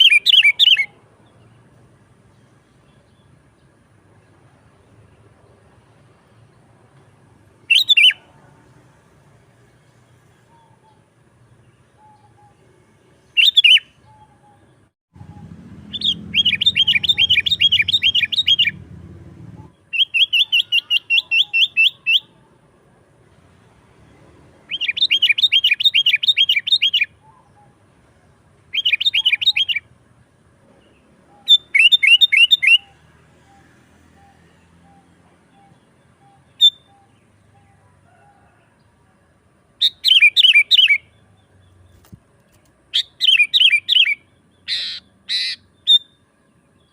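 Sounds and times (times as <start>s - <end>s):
bird calling: 0.0s - 1.0s, 7.7s - 8.4s, 10.4s - 18.8s, 19.5s - 22.5s, 24.7s - 27.9s, 28.7s - 29.9s, 30.8s - 38.6s, 39.8s - 46.2s
bird chattering: 15.9s - 18.8s, 19.6s - 22.4s, 28.7s - 29.9s, 42.9s - 46.1s.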